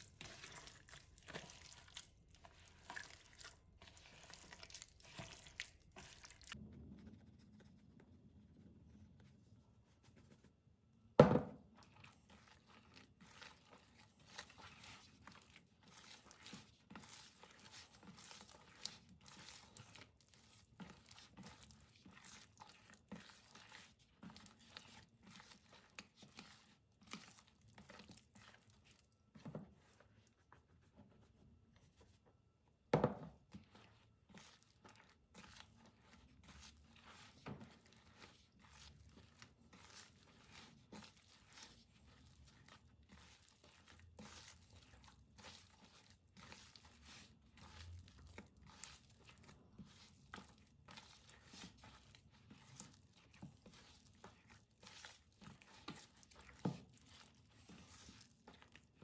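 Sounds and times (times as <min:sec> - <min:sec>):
rustling and crinkling: 0:00.0 - 0:10.6.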